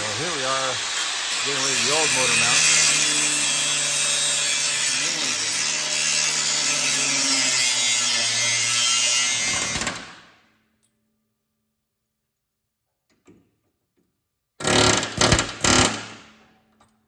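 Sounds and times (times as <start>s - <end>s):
power tool cutting steel: 0.0s - 10.3s, 14.6s - 16.2s.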